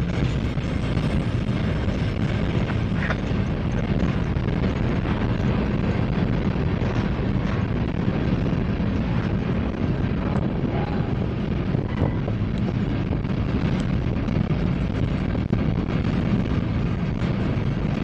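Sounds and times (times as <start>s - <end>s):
freight train wheels rumbling: 0.0s - 18.0s
wind buffeting microphone: 0.0s - 18.0s.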